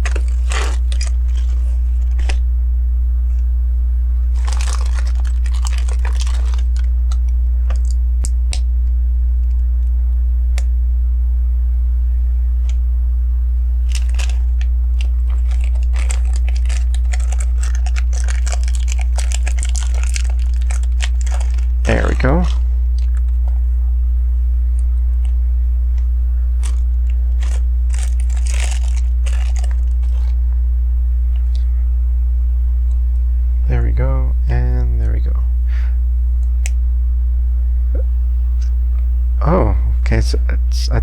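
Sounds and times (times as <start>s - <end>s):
crinkly rustling: 0.0s - 2.4s, 4.3s - 8.0s, 13.8s - 23.6s, 26.6s - 30.4s
steady low hum: 0.0s - 41.0s
plastic bricks clicking and rattling: 15.0s - 22.0s.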